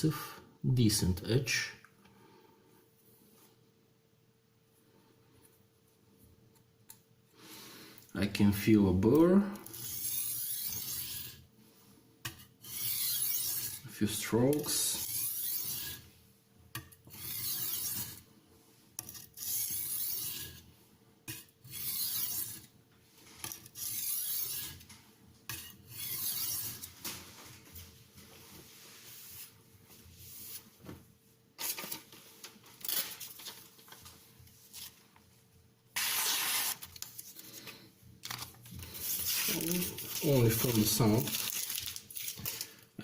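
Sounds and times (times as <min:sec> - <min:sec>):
knife scraping sharpening stone: 0:09.7 - 0:11.4, 0:12.6 - 0:13.8, 0:15.0 - 0:16.0, 0:17.1 - 0:18.2, 0:19.0 - 0:20.6, 0:21.3 - 0:22.7, 0:23.6 - 0:24.8, 0:25.5 - 0:26.9.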